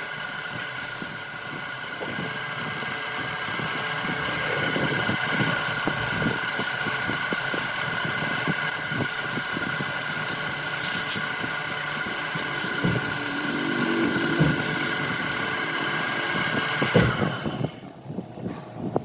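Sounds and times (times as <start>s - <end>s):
wood lathe motor whine: 0.0s - 18.0s
turning tool scraping wood: 3.7s - 17.6s.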